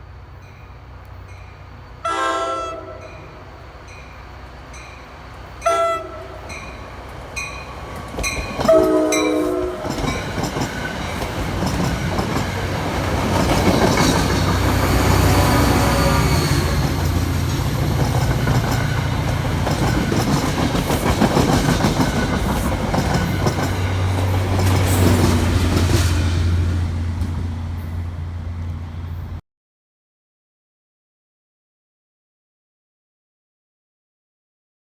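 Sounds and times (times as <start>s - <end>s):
locomotive engine rumble: 0.0s - 29.4s
train cars rushing past: 0.0s - 29.4s
train horn blast: 2.0s - 3.6s, 5.6s - 6.8s, 8.6s - 10.1s, 14.7s - 17.1s.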